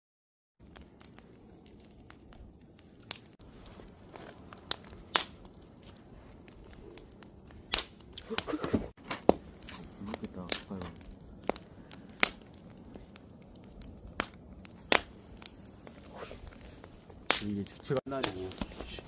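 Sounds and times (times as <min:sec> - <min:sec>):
campfire snapping and popping: 0:00.6 - 0:19.0
hiss of burning fire: 0:00.6 - 0:19.0.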